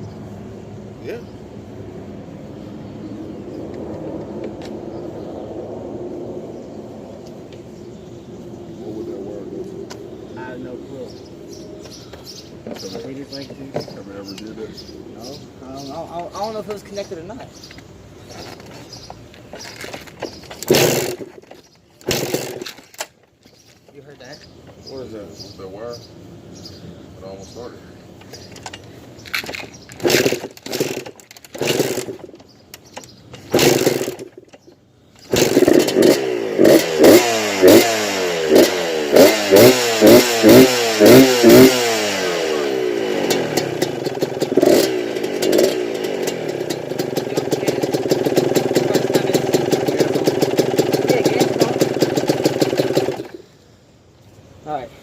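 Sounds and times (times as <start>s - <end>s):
dirt bike engine revving: 20.3s - 21.4s, 22.0s - 22.8s, 29.7s - 32.4s, 33.4s - 53.4s.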